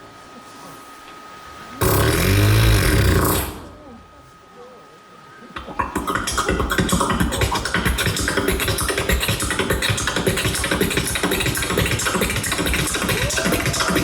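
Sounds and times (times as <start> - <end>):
beatboxing: 1.8 - 4.0, 5.6 - 14.0.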